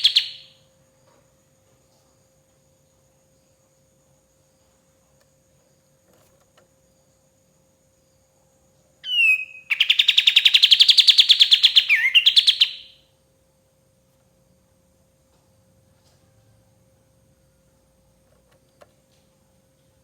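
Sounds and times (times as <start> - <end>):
bird song with rapid trill: 0.0 - 0.6, 9.0 - 13.1
faint steady hum: 0.0 - 20.0.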